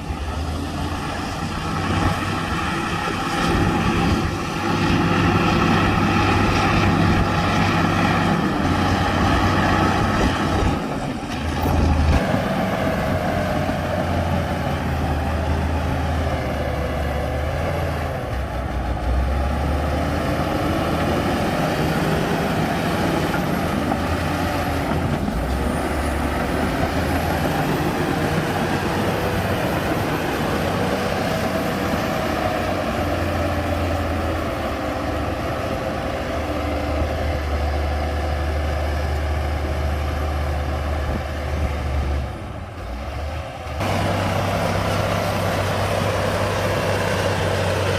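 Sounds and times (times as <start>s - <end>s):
heavy diesel machinery working: 0.0s - 47.9s.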